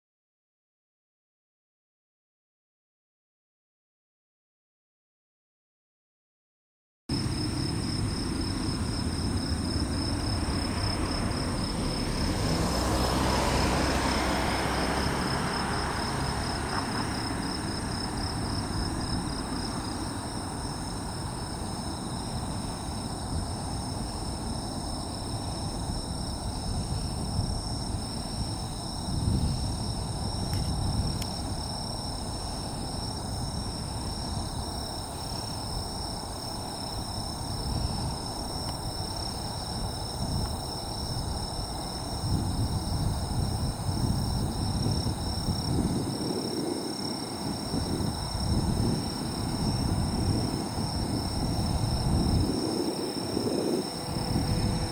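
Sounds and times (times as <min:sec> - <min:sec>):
distant jet engine rumble: 0:07.1 - 0:54.9
insects chirring: 0:07.1 - 0:54.9.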